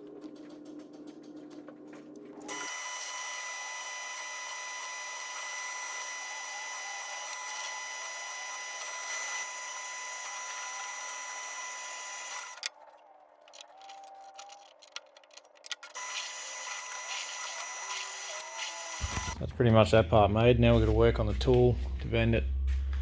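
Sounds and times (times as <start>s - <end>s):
drill press whining: 2.4s - 12.7s, 13.5s - 19.5s.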